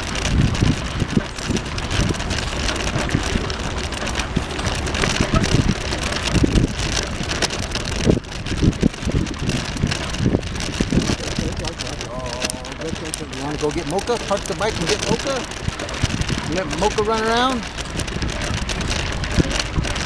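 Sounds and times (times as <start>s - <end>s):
passing road traffic hum: 0.0s - 14.5s
low thumps: 0.0s - 20.0s
wind buffeting microphone: 0.0s - 20.0s.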